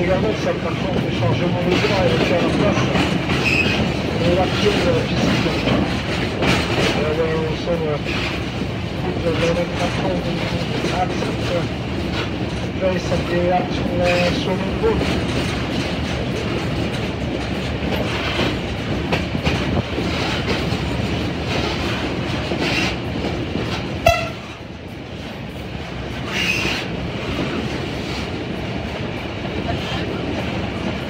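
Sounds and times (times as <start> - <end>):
wheels clattering over rail joints: 0.0 - 24.7
train rumbling: 0.0 - 31.0.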